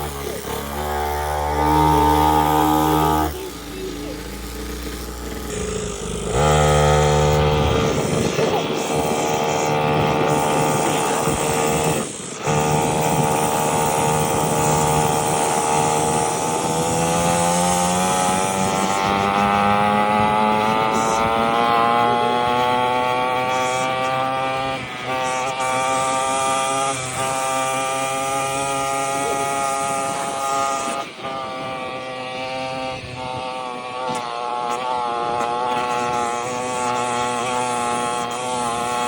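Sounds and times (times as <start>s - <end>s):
two-stroke pit bike engine: 0.0s - 39.0s.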